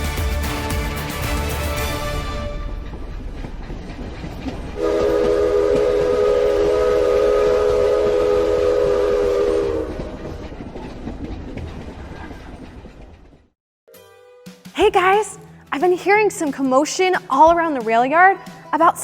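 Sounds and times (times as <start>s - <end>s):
train rumbling: 0.0s - 13.6s
train horn chord: 4.8s - 10.1s.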